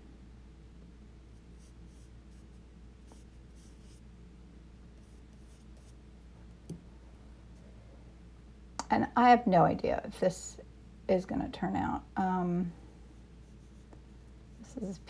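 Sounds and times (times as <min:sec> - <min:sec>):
low steady hum: 0:00.0 - 0:15.0
paintbrush strokes on paper: 0:01.3 - 0:04.1, 0:05.0 - 0:06.0, 0:13.1 - 0:15.0.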